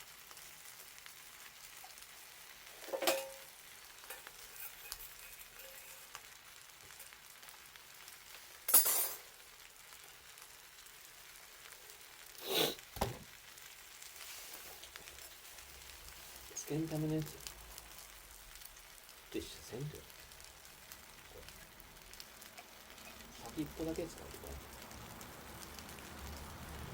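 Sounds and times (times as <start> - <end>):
bonfire crackling: 0.0 - 26.9
hissing pops from fire: 11.4 - 26.9.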